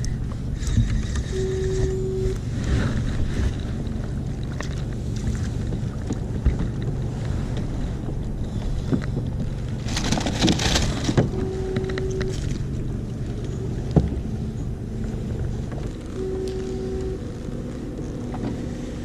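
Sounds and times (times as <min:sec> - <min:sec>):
water lapping against hull: 0:00.0 - 0:19.0
short steady tone: 0:01.0 - 0:02.5, 0:11.3 - 0:15.0, 0:16.0 - 0:17.7.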